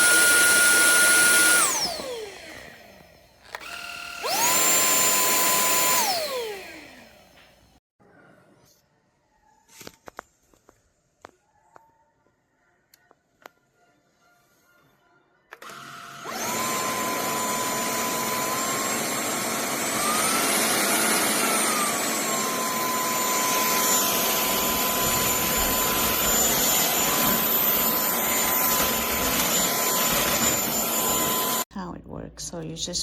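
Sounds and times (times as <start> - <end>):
vacuum cleaner motor whirring: 0.0 - 7.8, 15.5 - 31.7.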